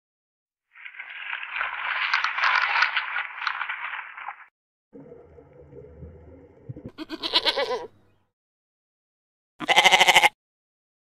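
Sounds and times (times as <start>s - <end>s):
leaves and twigs rustling: 0.7s - 4.5s
low rumble: 5.0s - 7.0s
goat kid bleating: 6.9s - 8.0s, 9.6s - 10.4s.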